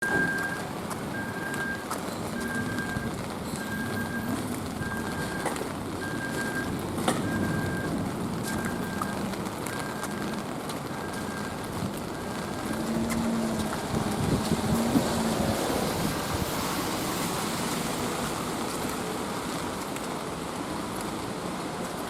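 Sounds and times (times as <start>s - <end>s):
light rain on a street: 0.0s - 22.0s
electronic beep: 2.4s - 6.7s, 7.3s - 7.9s, 8.5s - 10.3s.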